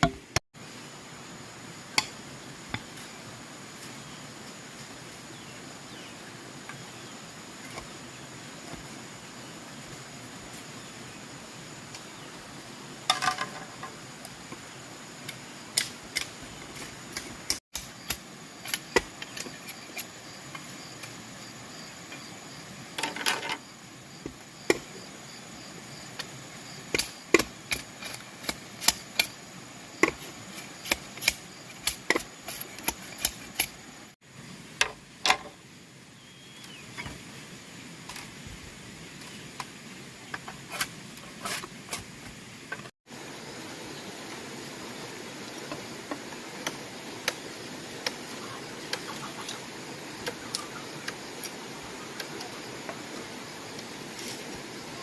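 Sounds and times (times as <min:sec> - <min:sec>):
steady background hiss: 0:00.0 - 0:55.0
hand tools knocking bamboo: 0:13.1 - 0:14.0.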